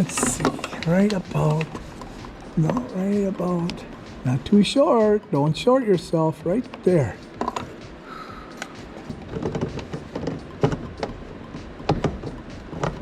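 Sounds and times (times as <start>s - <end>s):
plastic tubing clicking and knocking: 8.6s - 11.2s, 11.8s - 13.0s.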